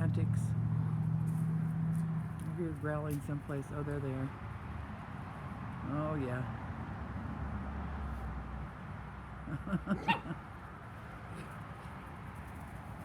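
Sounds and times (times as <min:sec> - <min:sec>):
puppies growling and yipping: 0:09.9 - 0:10.4.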